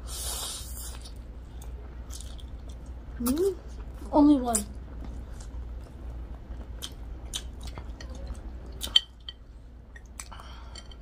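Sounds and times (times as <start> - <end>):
chewing food: 0.9 - 4.0, 4.6 - 9.3.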